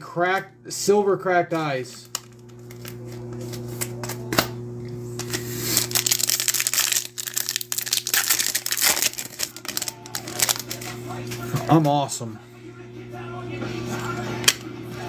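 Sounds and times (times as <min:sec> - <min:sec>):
steady low hum: 0:00.0 - 0:15.0
card wrapper crinkling: 0:02.0 - 0:04.2, 0:05.2 - 0:11.9.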